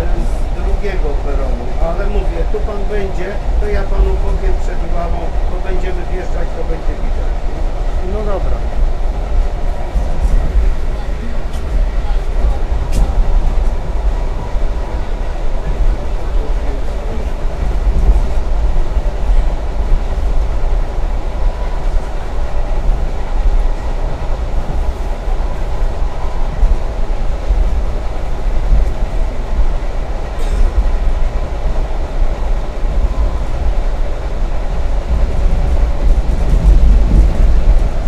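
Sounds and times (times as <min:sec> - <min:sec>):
train rumbling inside carriage: 0:00.0 - 0:38.0.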